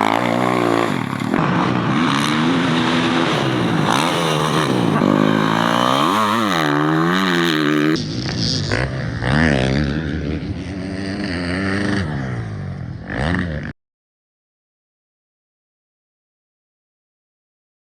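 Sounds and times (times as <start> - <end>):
dirt bike engines revving: 0.0 - 9.6.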